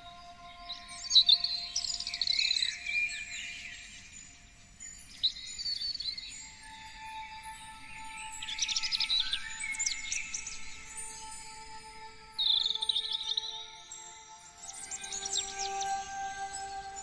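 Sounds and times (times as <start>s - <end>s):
songbirds chirping: 0.0s - 17.0s
ambient music: 10.8s - 17.0s.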